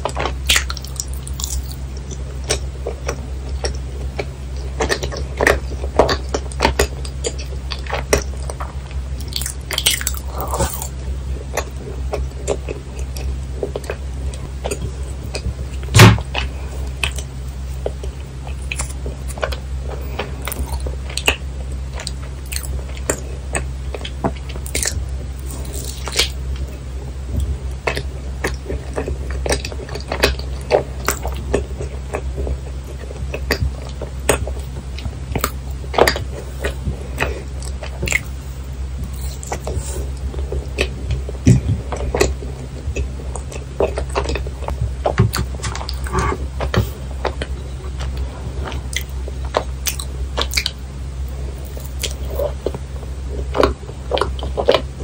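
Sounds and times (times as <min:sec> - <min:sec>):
wet chewing mouth clicks: 0:00.0 - 0:26.8, 0:39.0 - 0:52.8
faint low hum: 0:00.0 - 0:55.0.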